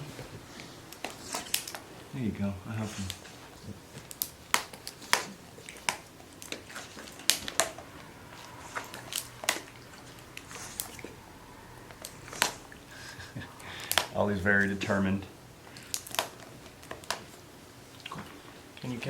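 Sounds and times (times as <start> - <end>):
snack package crackling: 0.9 - 1.9, 2.9 - 11.2, 11.8 - 14.2, 15.6 - 17.4.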